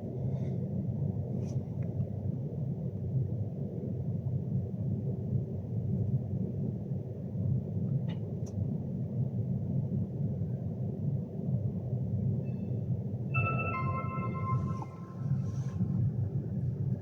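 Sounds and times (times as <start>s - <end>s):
electric train rumbling: 12.5s - 17.0s.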